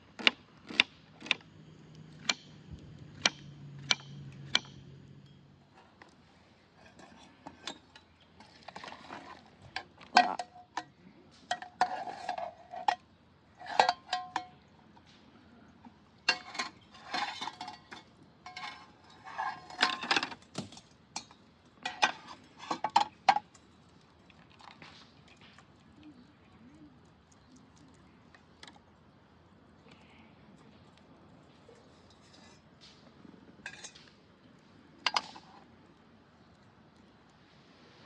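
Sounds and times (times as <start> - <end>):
metal cookware clinking: 13.6 - 14.6, 16.3 - 20.4, 21.2 - 23.4, 33.6 - 34.0.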